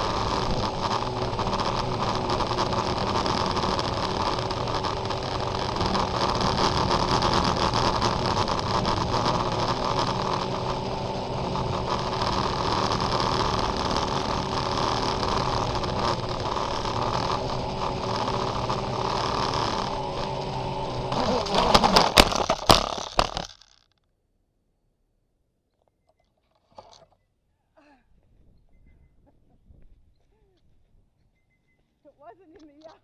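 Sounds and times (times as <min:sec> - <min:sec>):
motor humming: 0:00.0 - 0:23.6.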